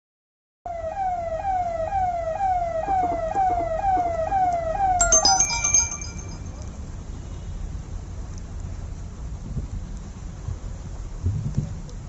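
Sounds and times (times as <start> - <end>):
electronic siren wailing: 0.7 - 6.6
high tinkling chime tones: 5.0 - 6.7.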